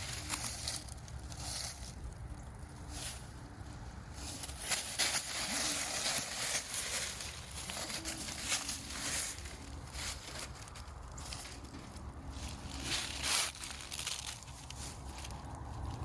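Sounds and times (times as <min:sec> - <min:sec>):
rustling and crunching: 0:00.0 - 0:16.0.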